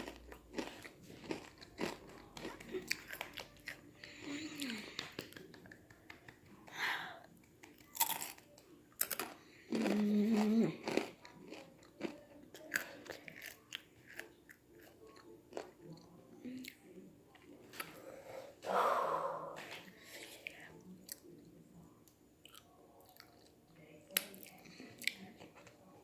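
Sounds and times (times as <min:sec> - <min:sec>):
chewing crunchy chips: 0:00.0 - 0:06.0, 0:07.4 - 0:16.8, 0:22.4 - 0:26.0
breathy rush of air: 0:18.0 - 0:19.7.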